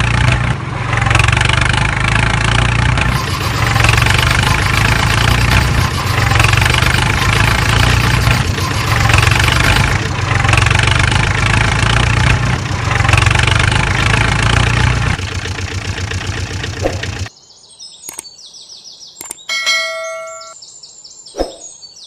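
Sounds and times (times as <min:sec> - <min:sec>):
vehicle engine idling: 0:00.0 - 0:17.3.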